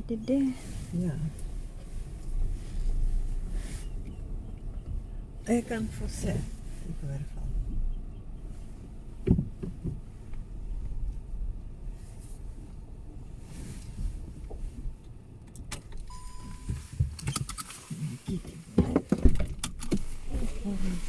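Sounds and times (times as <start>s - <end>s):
car cabin rumble: 0.0s - 21.0s
short steady beep: 16.1s - 16.9s.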